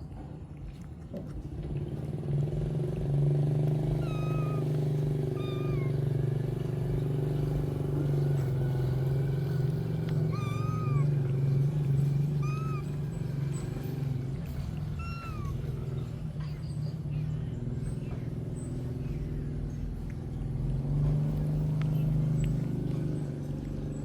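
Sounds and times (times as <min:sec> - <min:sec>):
cats meowing: 0:03.7 - 0:07.7, 0:09.4 - 0:16.4.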